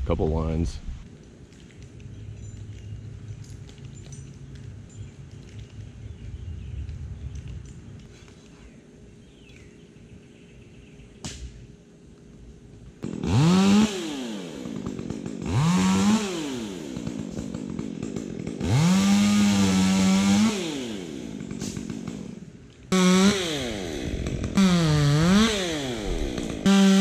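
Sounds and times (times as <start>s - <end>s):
chainsaw revving: 13.0s - 27.0s.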